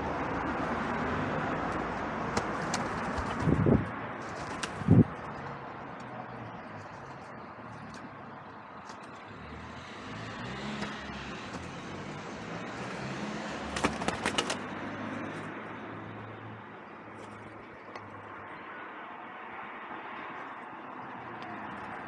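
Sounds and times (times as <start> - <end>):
road traffic hum: 0.0 - 22.0
pigeon wing claps: 1.7 - 3.6, 4.2 - 5.0, 13.6 - 14.7.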